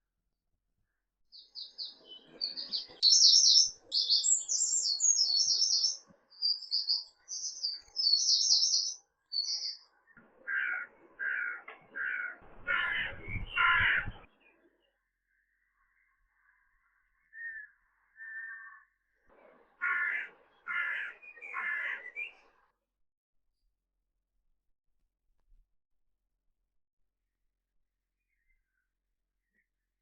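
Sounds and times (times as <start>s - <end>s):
songbird chirping: 1.3s - 19.3s, 19.9s - 22.7s
large bird harsh calls: 10.4s - 14.3s, 17.3s - 19.0s, 19.7s - 22.6s.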